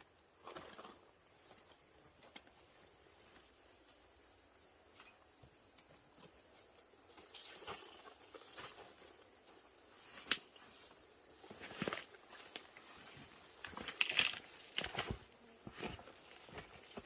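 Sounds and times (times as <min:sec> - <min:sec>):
insects chirring: 0:00.0 - 0:17.0
soft rustles or steps: 0:04.9 - 0:17.0.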